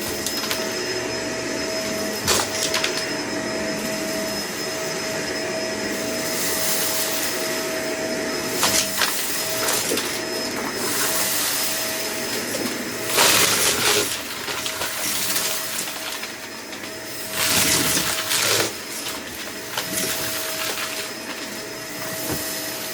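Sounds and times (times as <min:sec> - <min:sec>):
vacuum cleaner motor whine: 0:00.0 - 0:22.9
debris rattling through vacuum: 0:08.5 - 0:22.5.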